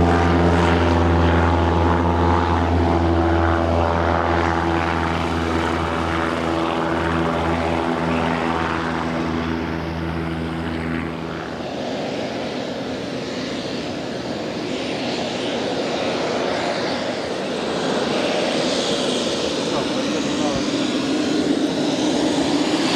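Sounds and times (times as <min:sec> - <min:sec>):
piston aircraft engine and propeller: 0:00.0 - 0:22.9
turboprop rushing noise: 0:00.0 - 0:22.9.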